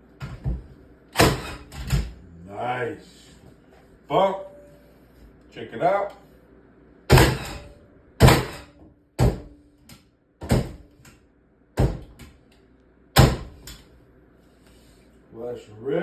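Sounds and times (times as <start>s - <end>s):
nail gun shots: 1.2s - 1.9s, 7.1s - 8.6s.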